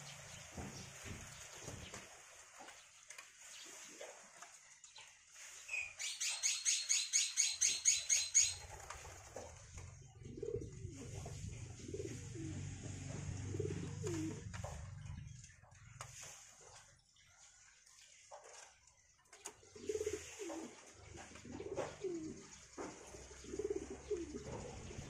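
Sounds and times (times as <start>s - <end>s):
bird sharp high calls: 5.7s - 8.7s.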